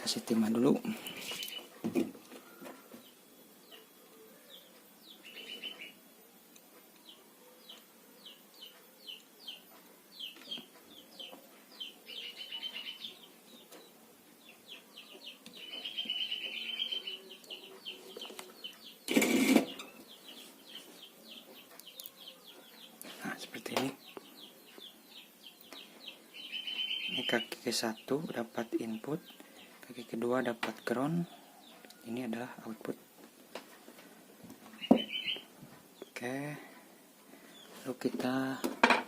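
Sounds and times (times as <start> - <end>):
small birds chirping: 0.1 - 38.8.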